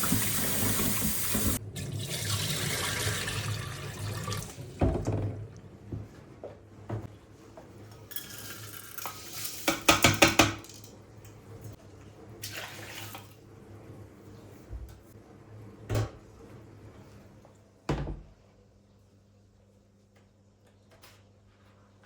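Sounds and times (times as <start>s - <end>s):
water running from tap: 0.0s - 4.8s, 12.4s - 13.4s.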